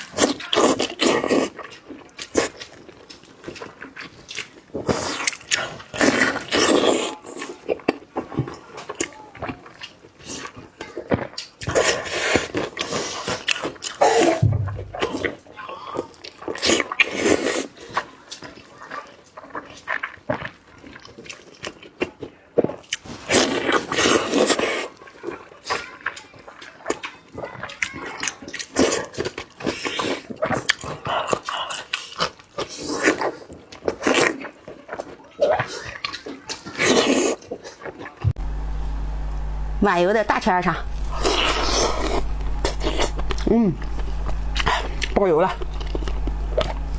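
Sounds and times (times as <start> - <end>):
close chewing and mouth smacks: 0.0 - 14.4, 15.8 - 39.8, 40.8 - 46.9
person chewing and slurping: 40.6 - 46.9.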